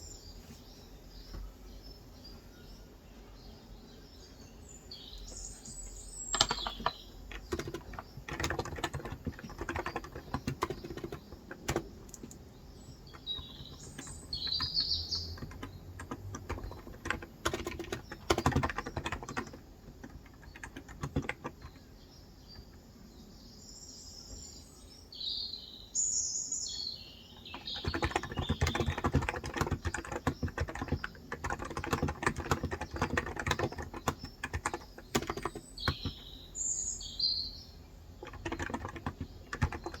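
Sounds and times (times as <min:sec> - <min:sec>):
birds chirping: 0:00.0 - 0:40.0
keyboard typing: 0:05.6 - 0:21.9, 0:27.5 - 0:36.3, 0:38.2 - 0:40.0.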